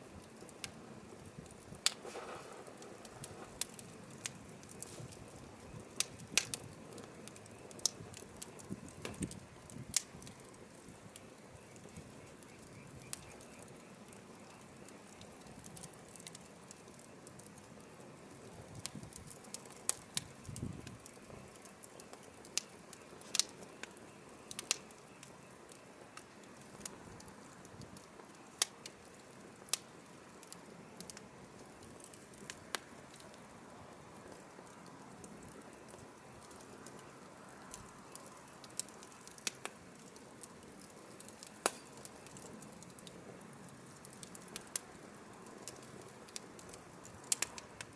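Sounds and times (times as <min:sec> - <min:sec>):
firewood crackling and popping: 0:00.0 - 0:47.9
soft steady hiss: 0:00.0 - 0:47.9.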